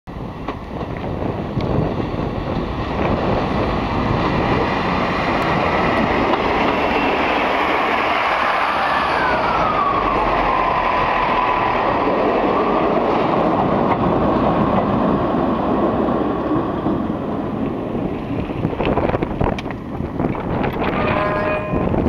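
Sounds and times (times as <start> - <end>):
train rumbling across wooden bridge: 0.1 - 22.0
high whine sliding down: 2.8 - 13.7.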